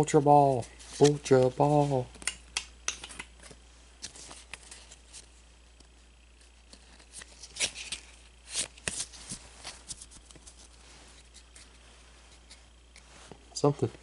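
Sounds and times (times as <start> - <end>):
trading cards rustling: 0.4 - 2.3, 2.9 - 5.3, 6.4 - 13.1.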